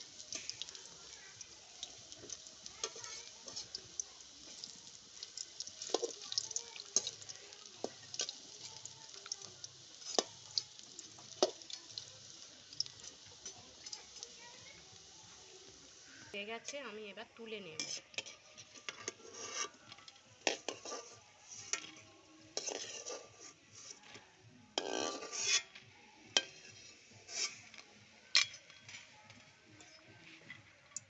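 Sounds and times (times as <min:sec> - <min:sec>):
oil popping: 0:00.0 - 0:15.0
fritters sizzling in hot oil: 0:00.0 - 0:31.0.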